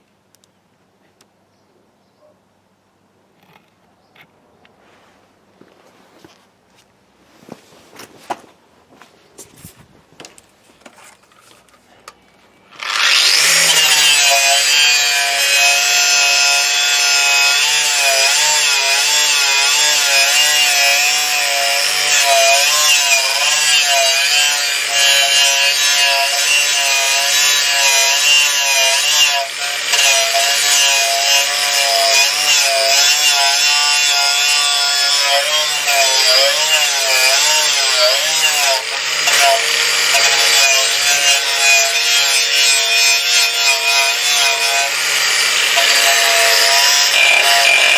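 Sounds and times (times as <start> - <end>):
power tool whining under load: 12.7 - 47.9.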